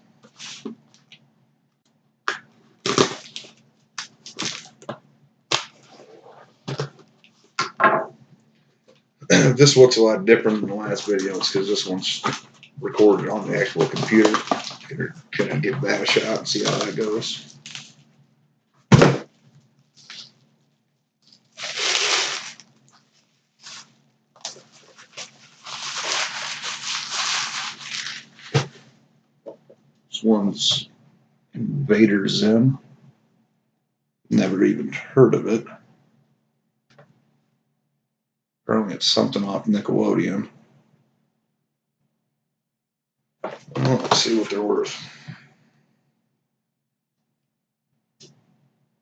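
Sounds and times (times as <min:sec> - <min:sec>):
toy packaging crackling: 0:13.3 - 0:14.9, 0:15.9 - 0:18.0, 0:21.6 - 0:22.7, 0:24.4 - 0:28.6.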